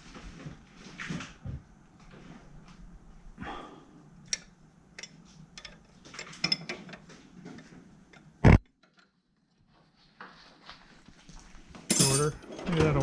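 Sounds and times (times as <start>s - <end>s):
hand tools clicking and clinking: 11.9s - 13.0s.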